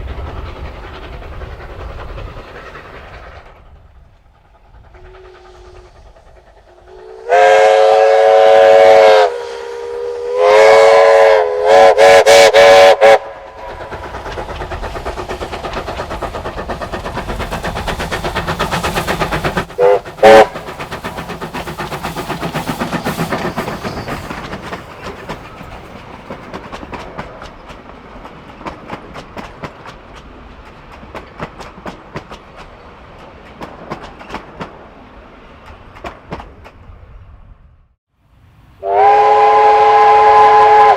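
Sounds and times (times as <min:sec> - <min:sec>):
clatter of running train: 0:00.0 - 0:09.4, 0:10.4 - 0:37.3
steam whistle blasts: 0:06.8 - 0:13.7, 0:19.8 - 0:20.6, 0:38.8 - 0:40.9.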